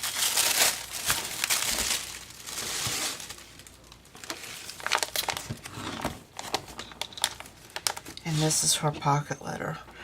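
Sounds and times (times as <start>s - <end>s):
plastic sleeve and paper crinkling: 0.0s - 5.7s, 6.3s - 8.8s.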